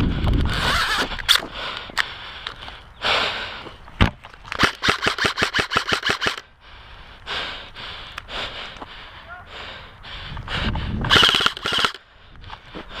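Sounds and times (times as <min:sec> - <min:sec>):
airsoft gun shots: 0:04.6 - 0:06.4, 0:11.1 - 0:12.0.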